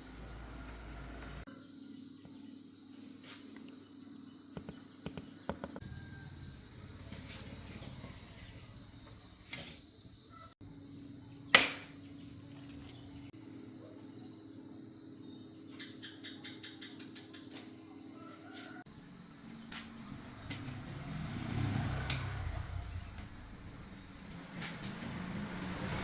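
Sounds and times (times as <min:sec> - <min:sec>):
insects trilling: 0:01.6 - 0:11.4.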